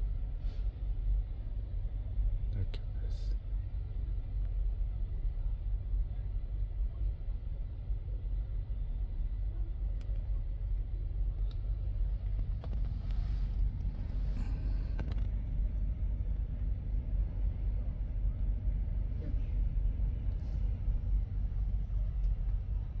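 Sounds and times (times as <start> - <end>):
diesel truck engine idling: 7.6 - 15.5, 20.4 - 23.0.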